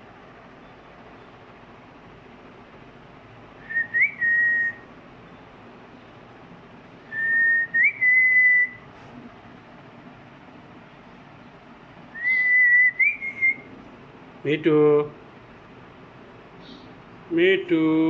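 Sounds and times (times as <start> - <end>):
parrot whistling: 3.6 - 4.9, 7.1 - 8.8, 12.1 - 13.7.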